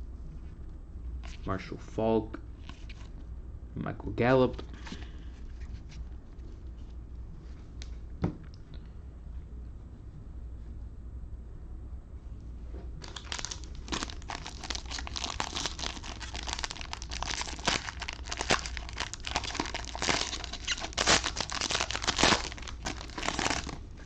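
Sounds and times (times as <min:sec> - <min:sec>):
plastic wrappers crinkling and tearing: 0:13.0 - 0:24.0.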